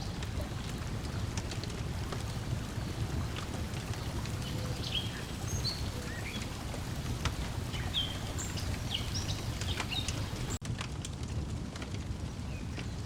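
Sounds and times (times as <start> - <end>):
lake water lapping at shore: 0.0 - 10.6
wood fire crackling: 0.0 - 13.0.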